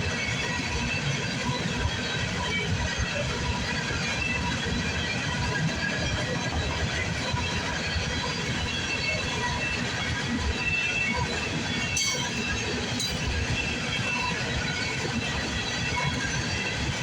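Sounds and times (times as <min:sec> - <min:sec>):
train wheels clattering on rail: 0:00.0 - 0:17.0
wheels squealing: 0:11.2 - 0:16.9.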